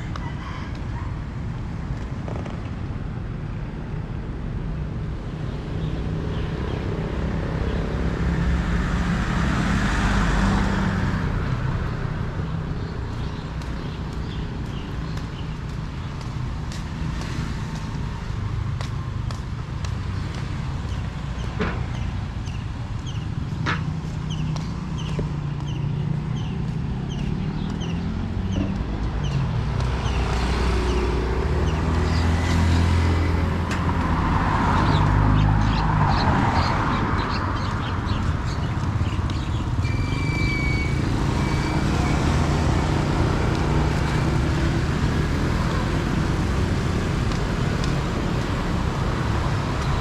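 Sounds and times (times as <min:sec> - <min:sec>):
vehicle engines running: 0:06.0 - 0:50.0
vehicle passing: 0:24.0 - 0:38.5, 0:40.9 - 0:50.0.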